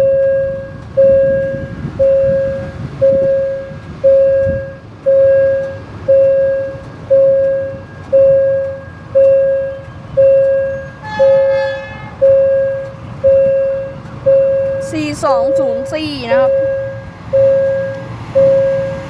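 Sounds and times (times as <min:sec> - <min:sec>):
horn toot: 0:11.0 - 0:12.4
level crossing bell dinging: 0:12.3 - 0:19.0.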